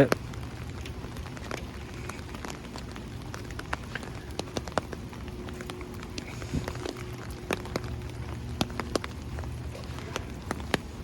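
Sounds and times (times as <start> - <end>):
raindrops hitting near microphone: 0.0 - 11.0
steady rain: 0.0 - 11.0.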